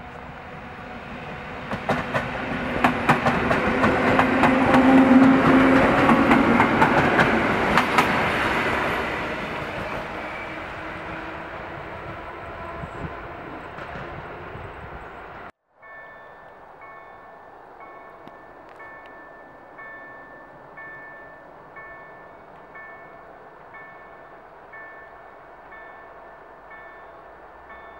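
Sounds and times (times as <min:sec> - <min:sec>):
train low hum: 0:00.0 - 0:27.9
wheels clacking over rail joints: 0:01.6 - 0:10.5.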